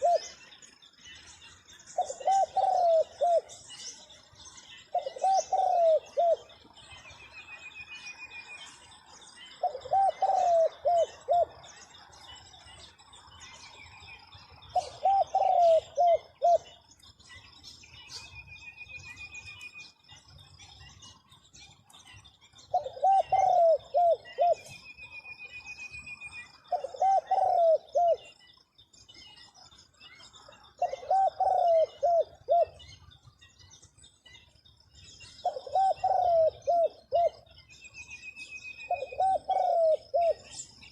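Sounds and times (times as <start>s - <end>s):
dove cooing: 0.0s - 0.4s, 2.0s - 3.8s, 4.9s - 6.6s, 9.6s - 11.8s, 14.7s - 16.8s, 22.7s - 24.8s, 26.6s - 28.4s, 30.7s - 32.9s, 35.4s - 37.5s, 38.8s - 40.6s.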